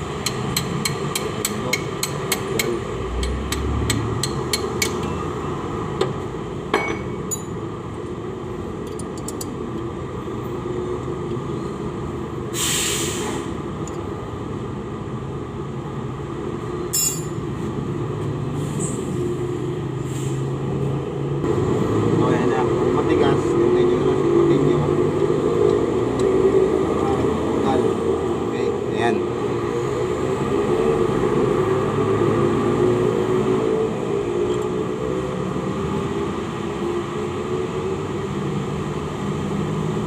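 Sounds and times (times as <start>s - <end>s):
hammer tapping on metal: 0.2s - 5.2s
short hiss: 12.6s - 13.5s
metal clinks: 16.9s - 17.4s.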